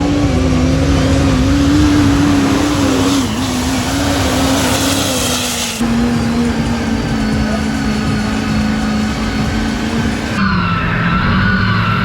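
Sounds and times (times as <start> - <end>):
vehicle engine at high revs: 0.0 - 10.5
hissing bursts: 1.0 - 10.4.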